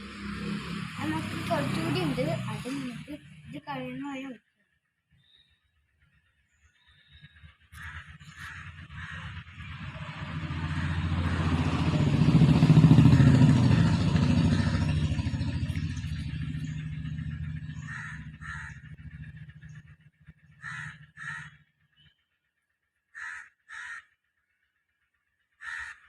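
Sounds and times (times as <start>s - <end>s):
vehicle engine passing by: 0.0s - 4.0s, 7.8s - 21.5s
crows cawing: 7.7s - 12.0s, 12.9s - 15.7s, 16.7s - 21.8s, 23.1s - 24.2s, 25.6s - 26.0s.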